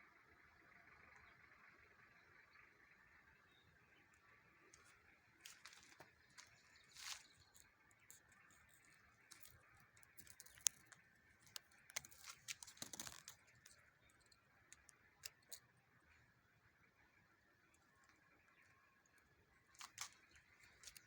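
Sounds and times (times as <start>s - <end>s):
faint clicks: 4.1s - 15.8s, 17.7s - 21.0s.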